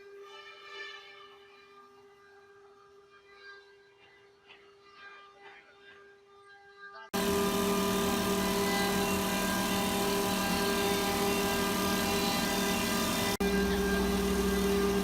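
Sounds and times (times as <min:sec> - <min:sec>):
wood lathe motor hum: 0:07.2 - 0:15.0.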